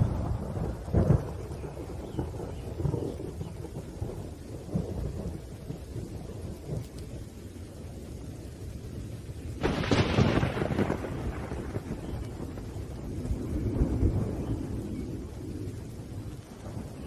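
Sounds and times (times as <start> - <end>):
loud thunderclap: 0.0 - 7.0, 9.5 - 17.0
steady rain: 0.0 - 17.0
thunder rumbling: 0.0 - 17.0.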